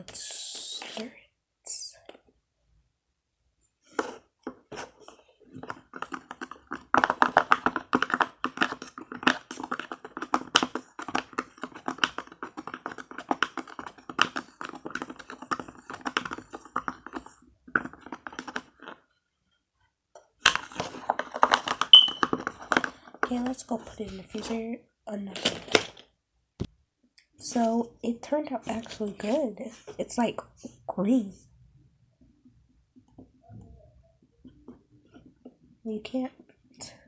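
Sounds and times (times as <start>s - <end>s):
marker tapping against container: 21.9s - 23.5s.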